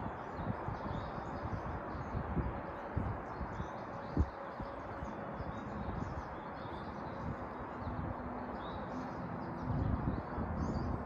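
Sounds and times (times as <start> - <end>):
small birds chirping: 0.0 - 11.0
steady outdoor hiss: 0.0 - 11.0.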